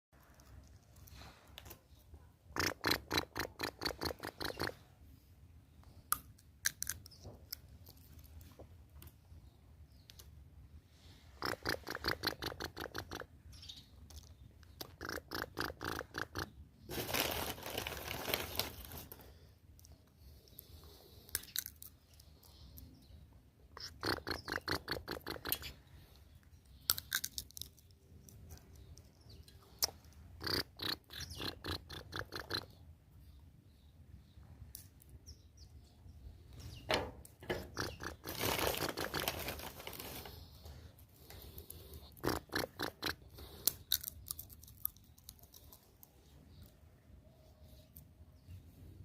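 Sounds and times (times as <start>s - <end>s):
sunflower seeds cracking: 6.1s - 8.5s, 26.8s - 29.1s, 41.4s - 46.1s
rustling scrape: 16.9s - 19.2s, 38.1s - 40.8s.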